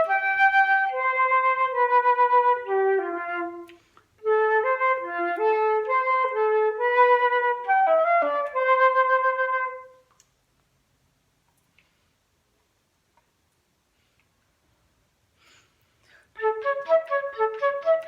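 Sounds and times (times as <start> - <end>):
recorder playing a melody: 0.0 - 10.0, 16.4 - 18.0.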